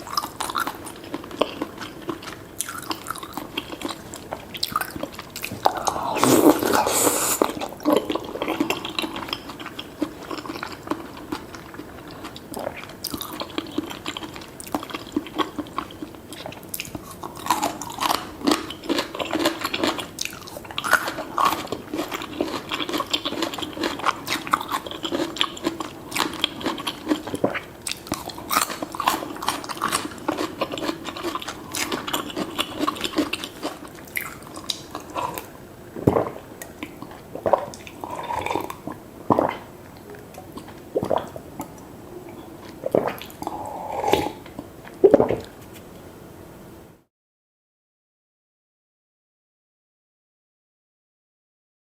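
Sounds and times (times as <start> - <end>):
chewing and biting: 0.0 - 6.8, 7.4 - 35.5.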